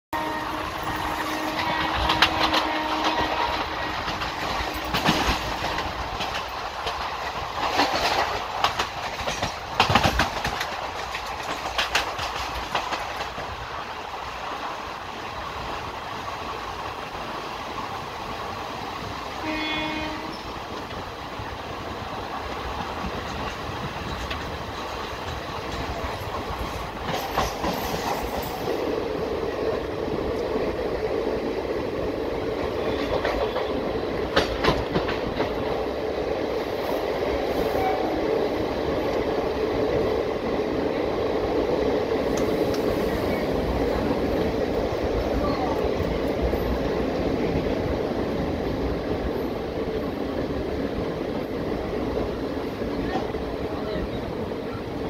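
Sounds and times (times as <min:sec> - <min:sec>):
train horn blast: 0:00.1 - 0:05.2, 0:19.4 - 0:20.7, 0:37.7 - 0:38.2
train rumble: 0:00.1 - 0:55.0
train wheels clattering over rails: 0:00.5 - 0:54.8.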